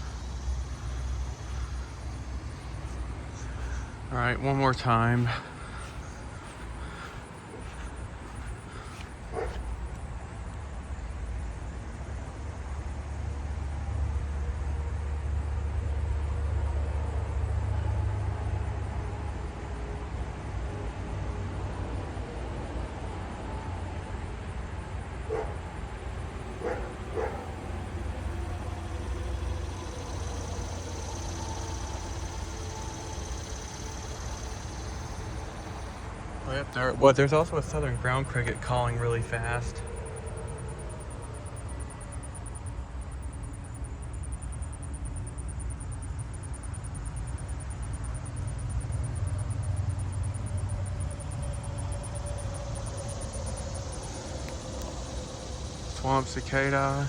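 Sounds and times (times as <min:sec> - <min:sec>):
steady low rumble: 0:00.0 - 0:11.5
cricket trilling: 0:00.0 - 0:13.3, 0:22.8 - 0:57.0
dog barking: 0:09.3 - 0:09.6, 0:25.3 - 0:25.7, 0:26.5 - 0:28.0.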